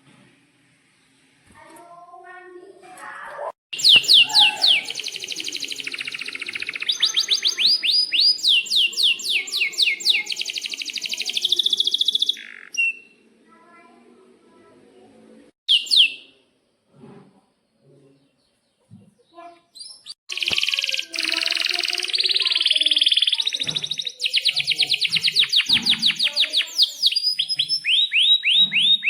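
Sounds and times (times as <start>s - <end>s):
canary singing: 3.8s - 13.2s, 15.7s - 16.3s, 19.3s - 29.0s.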